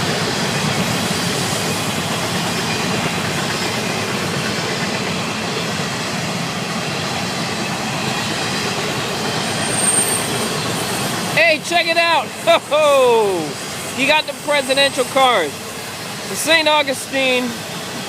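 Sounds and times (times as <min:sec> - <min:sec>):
freight train wheels on rail: 0:00.0 - 0:18.0.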